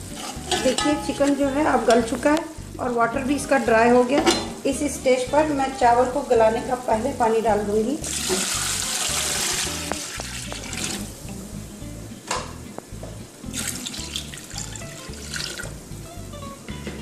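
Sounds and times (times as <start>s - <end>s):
water splashing: 8.0s - 11.1s
water pouring into a pot: 8.0s - 11.2s, 13.6s - 15.8s.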